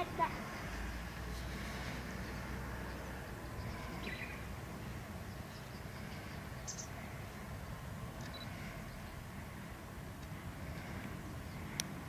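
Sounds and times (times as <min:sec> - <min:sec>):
low outdoor rumble: 0:00.0 - 0:12.0
bird chirps: 0:02.2 - 0:04.5, 0:05.3 - 0:07.0, 0:08.2 - 0:09.2.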